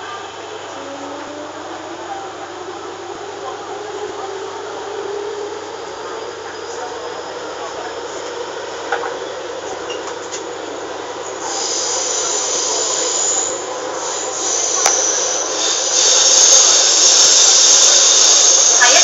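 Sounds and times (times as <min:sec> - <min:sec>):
train wheels rushing on rail: 0:00.0 - 0:19.0
high hiss: 0:11.4 - 0:19.0.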